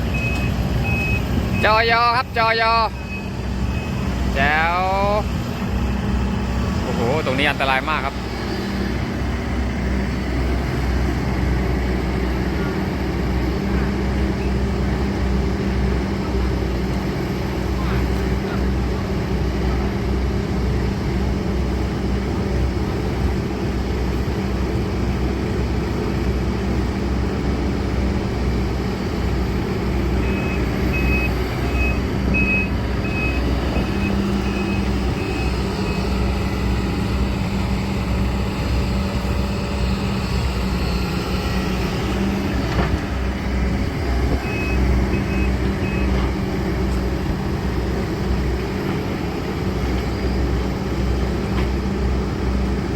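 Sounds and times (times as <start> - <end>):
travel alarm beeping: 0.0 - 5.2, 30.0 - 37.4, 43.9 - 46.4
excavator diesel engine running: 0.0 - 52.9.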